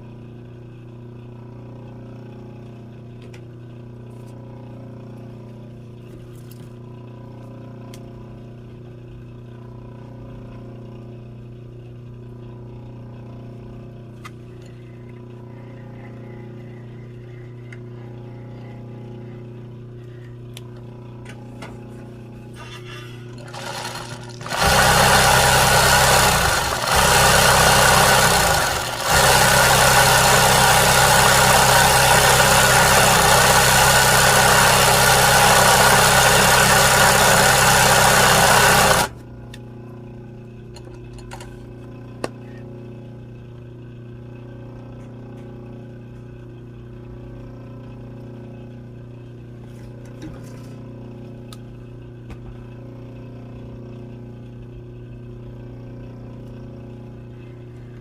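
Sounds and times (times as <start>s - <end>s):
small electric motor whirring: 23.4s - 39.2s.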